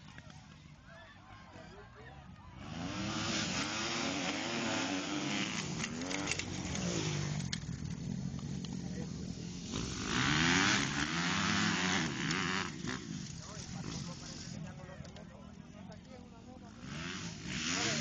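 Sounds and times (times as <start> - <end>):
motorcycles revving and racing past: 2.6 - 14.6, 16.6 - 18.0.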